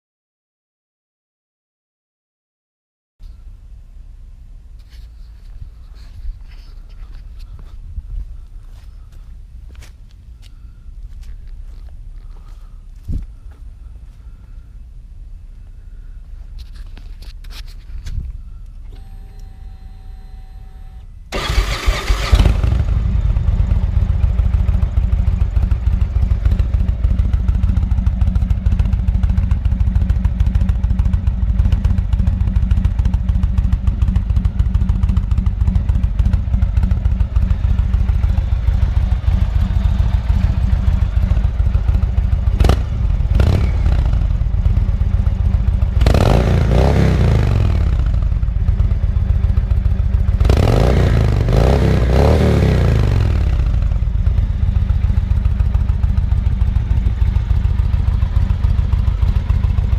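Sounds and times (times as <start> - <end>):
faint steady hum: 3.2 - 21.4
motorcycle engine idling loudly: 21.4 - 59.9.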